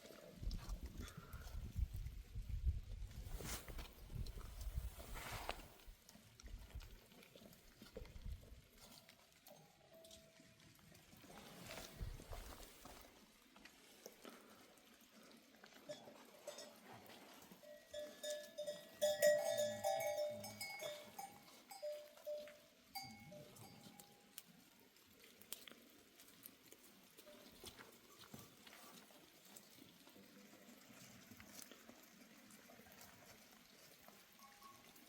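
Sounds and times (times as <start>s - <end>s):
goat bells clanking: 9.4s - 10.6s, 15.9s - 24.4s, 34.0s - 35.0s.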